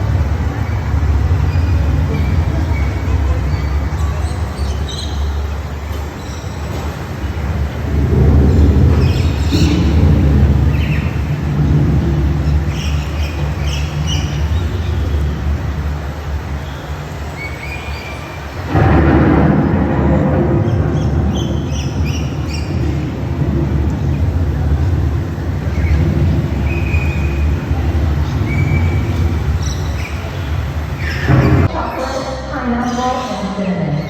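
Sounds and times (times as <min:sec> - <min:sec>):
low ambient rumble: 0:00.0 - 0:34.0
bird chirps: 0:01.4 - 0:05.5, 0:12.4 - 0:15.3, 0:16.6 - 0:18.4, 0:20.6 - 0:23.2, 0:25.6 - 0:34.0.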